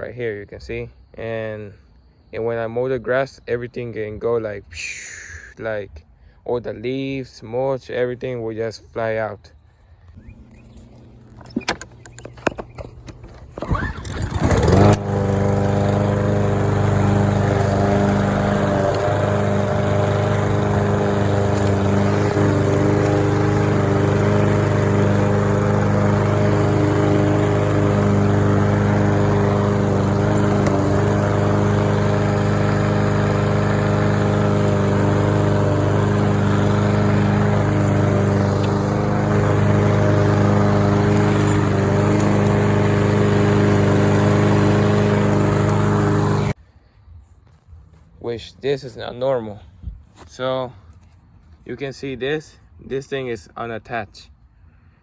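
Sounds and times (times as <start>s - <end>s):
lawn mower engine running: 10.1s - 46.6s.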